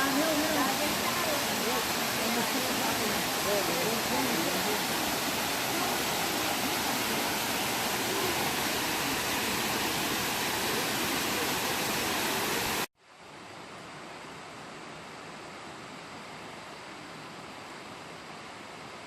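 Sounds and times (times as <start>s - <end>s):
waterfall roaring: 0.0s - 12.9s.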